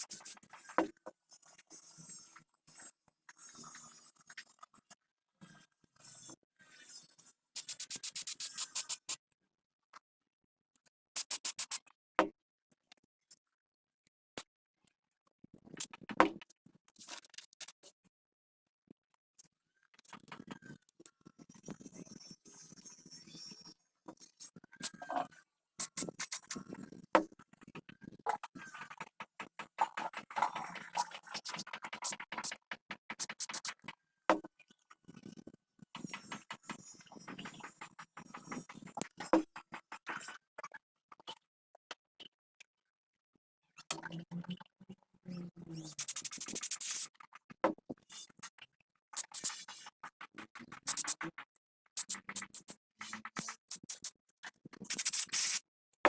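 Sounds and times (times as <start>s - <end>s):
clicks taps and scrapes: 28.3s - 34.5s, 36.0s - 40.4s, 49.2s - 55.6s.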